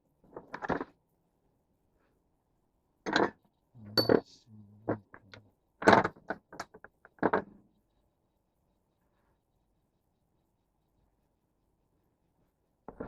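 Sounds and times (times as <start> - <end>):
metal tools clinking and knocking: 4.0 - 4.3.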